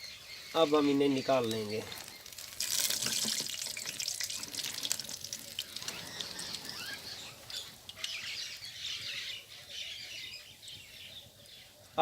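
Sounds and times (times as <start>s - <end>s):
food deep-frying in hot oil: 1.2s - 8.2s.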